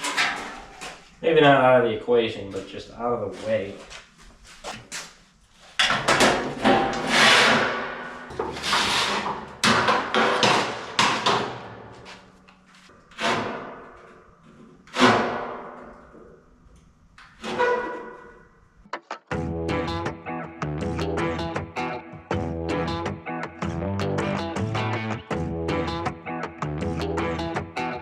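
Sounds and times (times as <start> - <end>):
sheet metal parts clanking: 0.0 - 1.0, 5.8 - 11.8.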